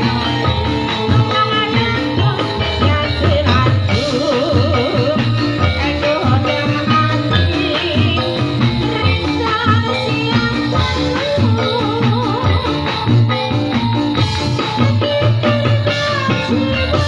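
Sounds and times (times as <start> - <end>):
drum and percussion beat: 0.0 - 17.0
wavering melody line: 0.0 - 17.0.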